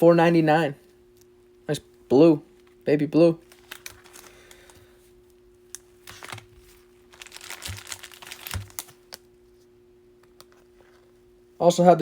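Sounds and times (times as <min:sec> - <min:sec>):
cards and packaging crinkling: 0:03.4 - 0:05.0, 0:05.7 - 0:09.3.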